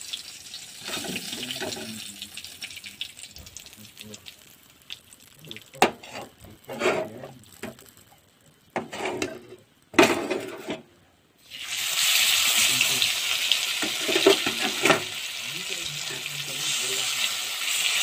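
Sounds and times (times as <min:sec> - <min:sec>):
food sizzling in hot oil: 0:00.0 - 0:18.0
utensil scraping a wok: 0:00.6 - 0:02.0, 0:05.8 - 0:07.9, 0:08.8 - 0:10.9, 0:11.5 - 0:15.4.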